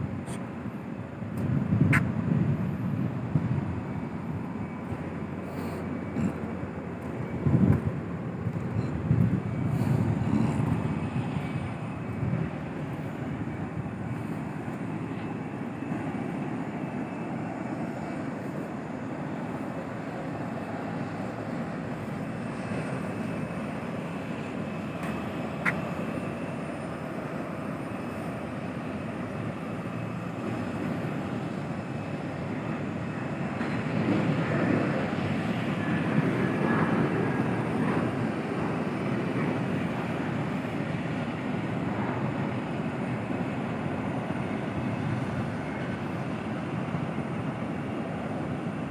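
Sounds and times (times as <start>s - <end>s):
airplane engine rumble: 0.0s - 48.9s.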